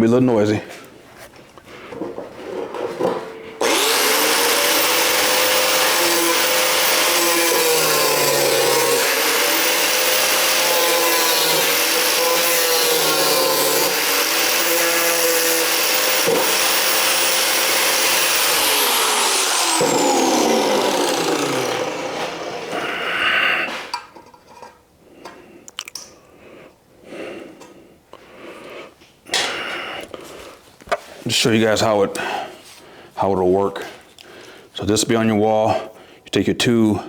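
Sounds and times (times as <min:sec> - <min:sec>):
cutoff wheel grinding sheet steel: 0:03.6 - 0:23.1.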